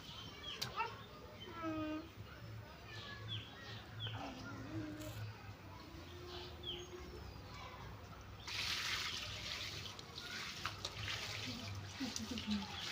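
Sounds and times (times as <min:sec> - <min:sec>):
water running and trickling: 0:08.4 - 0:12.9.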